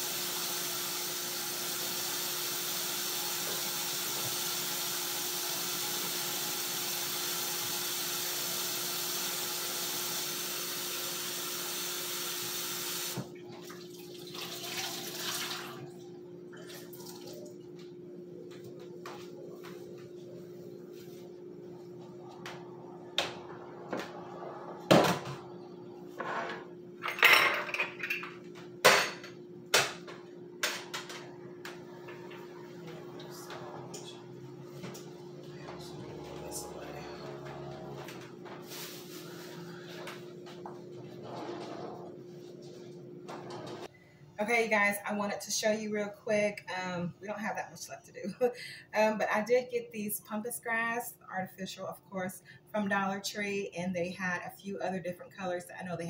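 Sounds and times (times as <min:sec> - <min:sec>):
steady hum: 0:15.8 - 0:45.7.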